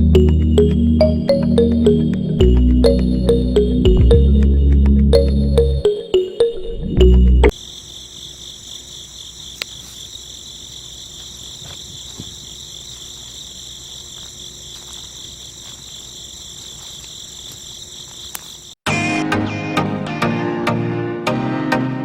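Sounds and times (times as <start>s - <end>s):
insect chorus trilling: 7.5s - 18.8s.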